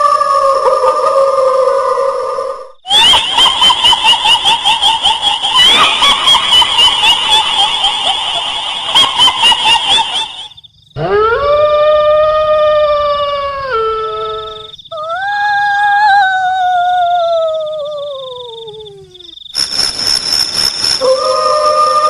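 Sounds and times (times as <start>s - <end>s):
long howls: 0.0s - 3.7s, 11.0s - 19.4s, 21.0s - 22.0s
shrill pulsing cackle: 0.0s - 19.4s, 21.0s - 22.0s.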